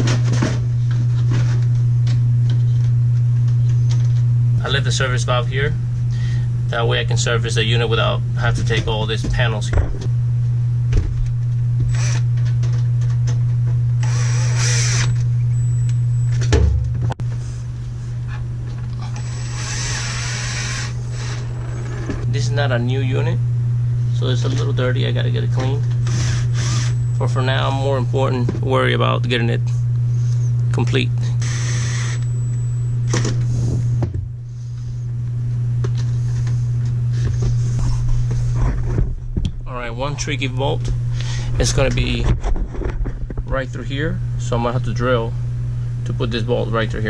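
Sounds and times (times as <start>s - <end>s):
steady low hum: 0.0s - 47.0s
power drill whining: 11.9s - 12.2s, 14.0s - 15.2s, 19.0s - 22.2s, 26.0s - 27.1s, 31.4s - 32.4s.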